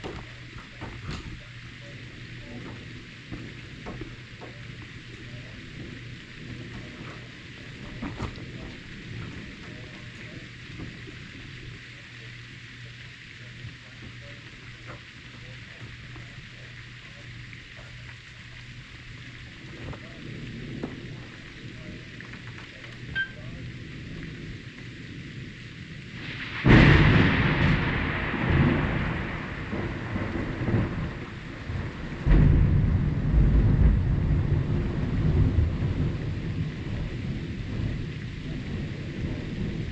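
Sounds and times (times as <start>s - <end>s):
steady rain: 0.0s - 39.9s
thunder rumbling: 0.0s - 39.9s.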